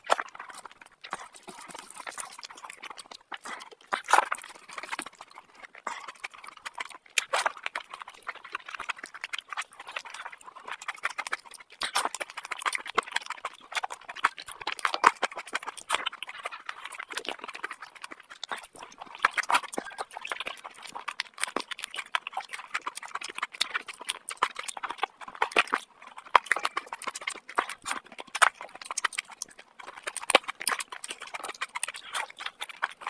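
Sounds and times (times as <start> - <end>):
wet chewing and lip-smacking: 0.0 - 33.0.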